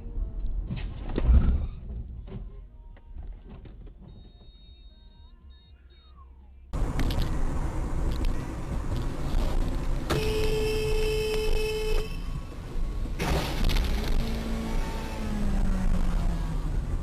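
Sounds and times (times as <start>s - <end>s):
car road and engine noise: 0.0s - 17.0s
car horn: 10.1s - 12.5s.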